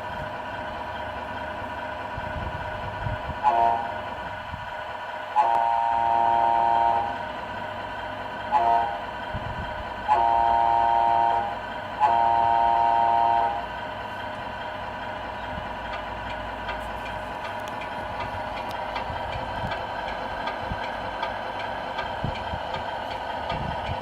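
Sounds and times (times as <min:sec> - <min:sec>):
engine hum: 0:00.0 - 0:24.0
toy truck air horn: 0:03.4 - 0:04.0, 0:05.4 - 0:07.2, 0:08.5 - 0:09.0, 0:10.1 - 0:13.7.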